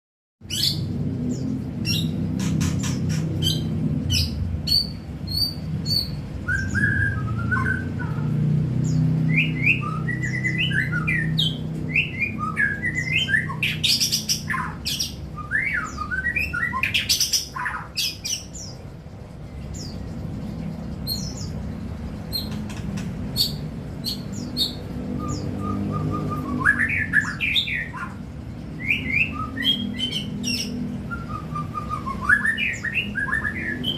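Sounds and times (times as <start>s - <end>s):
low background hum: 0.4s - 33.9s
bird singing whistled phrases: 4.2s - 8.3s, 9.3s - 18.4s, 23.4s - 28.2s, 28.8s - 33.9s.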